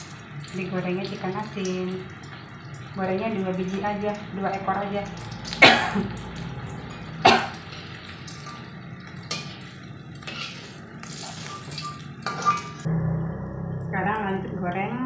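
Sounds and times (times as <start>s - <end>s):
fish sizzling in a wok: 0.0s - 12.9s
metal spatula scraping a wok: 9.3s - 12.8s.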